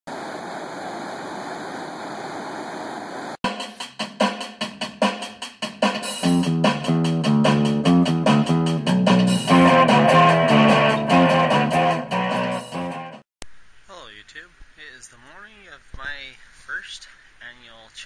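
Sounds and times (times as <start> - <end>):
rock drum beat: 3.4 - 13.2
bass and electric guitar: 6.2 - 13.2
steady hiss-like noise: 13.4 - 18.0.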